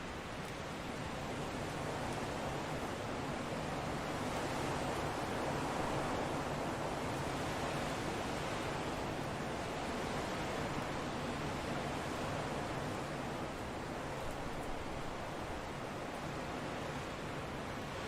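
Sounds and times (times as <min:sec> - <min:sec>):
steady wind: 0:00.0 - 0:18.0.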